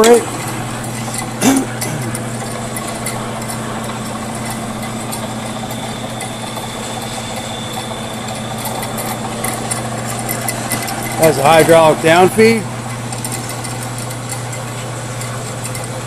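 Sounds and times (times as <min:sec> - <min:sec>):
band saw running: 0:00.0 - 0:16.0
faint high whine: 0:03.0 - 0:12.8.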